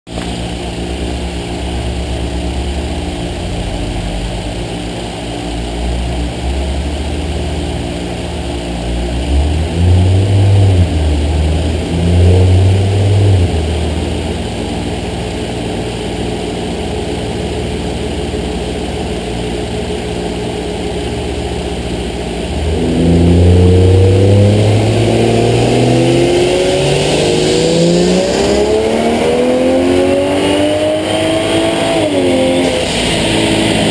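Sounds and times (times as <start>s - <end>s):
turbo car engine revving: 5.5s - 15.5s, 21.2s - 33.9s.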